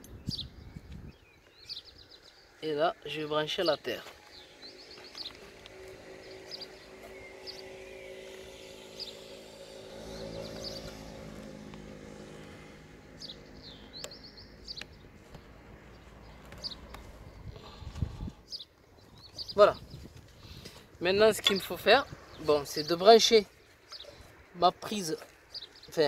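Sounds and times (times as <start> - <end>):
bird chirps: 0.0 - 20.0, 21.3 - 26.0
low engine hum: 4.2 - 18.4.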